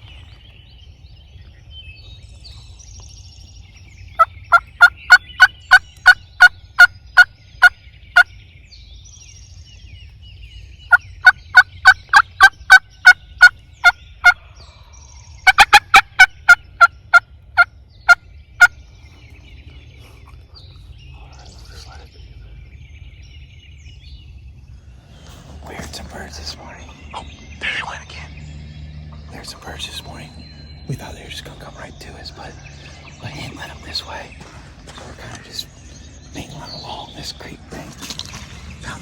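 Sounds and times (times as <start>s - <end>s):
turkey yelping: 4.2s - 8.3s, 10.9s - 14.4s, 15.4s - 18.8s.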